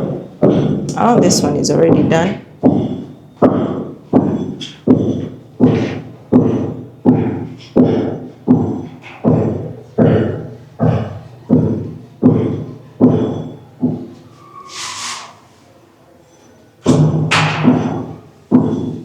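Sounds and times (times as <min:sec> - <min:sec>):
ringing hammer blows: 0:00.0 - 0:14.7, 0:16.8 - 0:19.0.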